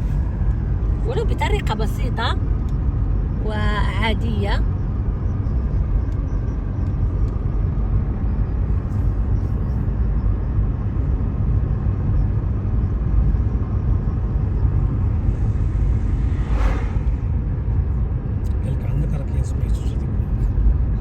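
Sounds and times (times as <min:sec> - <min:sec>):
car interior road rumble: 0:00.0 - 0:21.0
rush of noise: 0:14.0 - 0:18.8.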